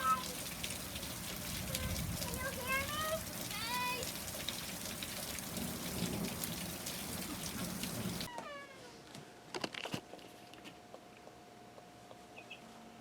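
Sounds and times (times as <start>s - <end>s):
rain and hail pattering: 0.0s - 8.3s.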